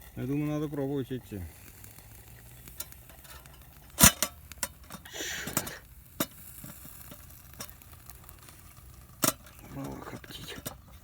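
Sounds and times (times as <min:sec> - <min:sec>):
brief rustling hiss: 0:01.5 - 0:07.8
metal cookware clinking: 0:02.8 - 0:07.7.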